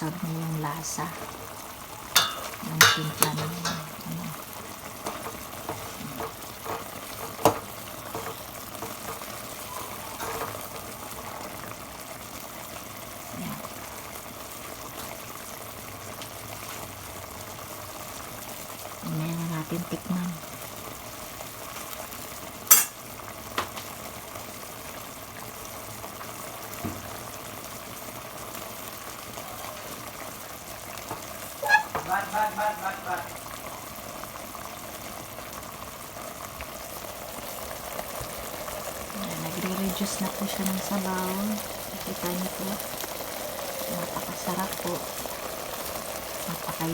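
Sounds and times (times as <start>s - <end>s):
food sizzling in a pan: 0.0s - 46.9s
pot bubbling: 0.0s - 46.9s
utensil moving food in pan: 0.7s - 11.7s, 31.1s - 33.2s
utensil knocking against pan: 2.2s - 4.2s, 5.0s - 9.3s.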